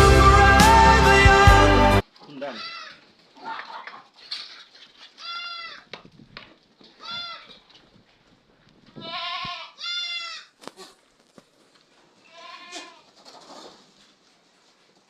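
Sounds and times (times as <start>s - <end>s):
goat bleating: 2.4s - 3.1s, 5.2s - 5.9s, 7.0s - 7.6s, 9.0s - 11.0s, 12.2s - 13.1s.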